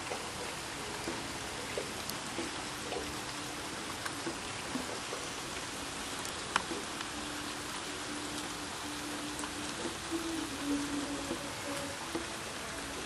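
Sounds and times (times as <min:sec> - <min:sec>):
steady rain falling: 0:00.0 - 0:13.0
drip taps: 0:01.0 - 0:03.2.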